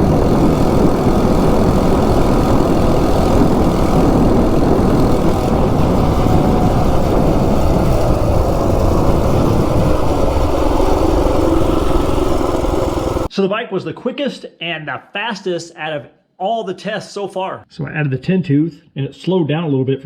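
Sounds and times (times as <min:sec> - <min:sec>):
heavy wind noise: 0:00.0 - 0:13.3
small engine running hard: 0:00.0 - 0:13.3.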